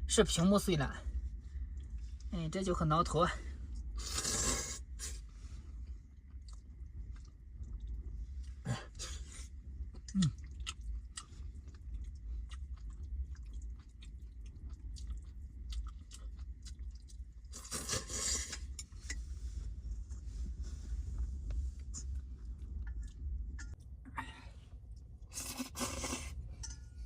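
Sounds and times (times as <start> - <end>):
person chewing crunchy food: 5.8 - 19.3
wind rumble: 18.6 - 23.8.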